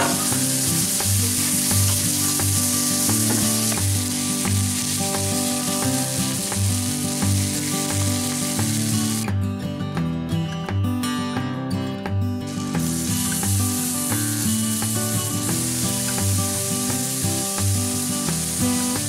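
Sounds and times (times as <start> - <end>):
metal spatula on griddle: 0.0 - 9.2
onions sizzling on griddle: 0.0 - 9.3, 12.5 - 19.0.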